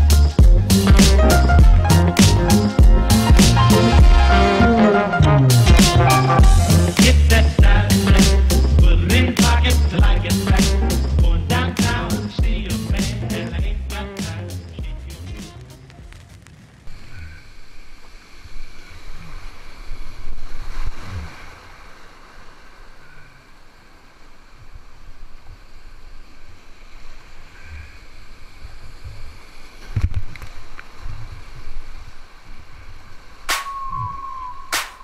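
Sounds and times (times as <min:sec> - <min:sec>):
faint water sounds: 0:14.8 - 0:34.7.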